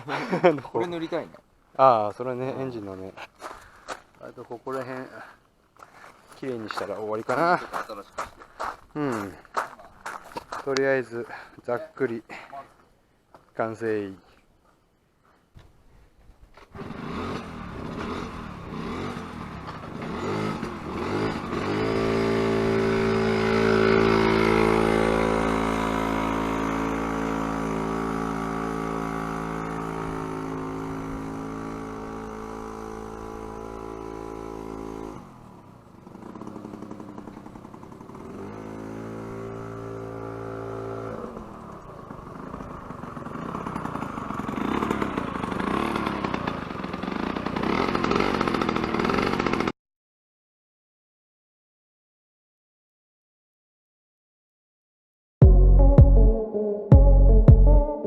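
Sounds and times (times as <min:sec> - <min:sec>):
scooter engine revving: 0:16.7 - 0:49.7.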